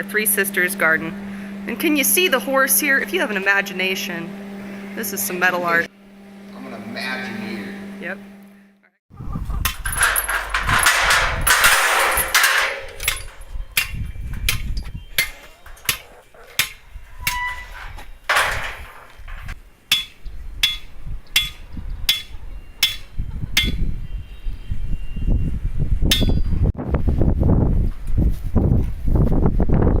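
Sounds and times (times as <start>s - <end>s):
hammer blows: 9.6s - 24.0s
rustling noise: 27.7s - 29.7s.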